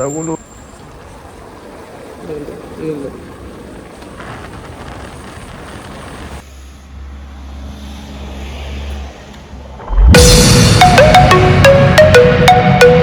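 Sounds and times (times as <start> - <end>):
mallet percussion music: 9.9 - 13.0.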